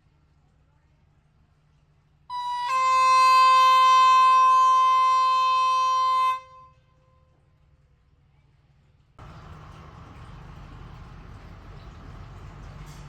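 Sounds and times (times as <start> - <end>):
train air horn blast: 2.3 - 6.9.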